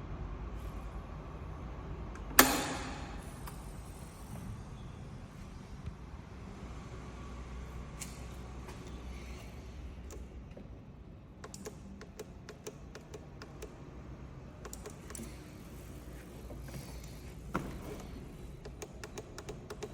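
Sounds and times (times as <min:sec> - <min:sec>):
sharp clicks: 0:11.4 - 0:13.8.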